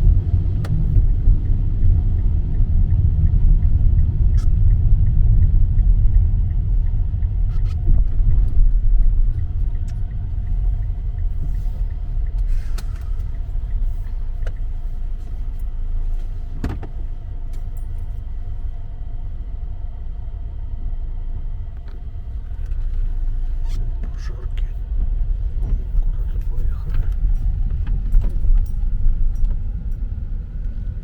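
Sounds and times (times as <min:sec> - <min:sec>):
light regular ticking: 0:00.0 - 0:15.8
low vehicle rumble: 0:00.0 - 0:31.0.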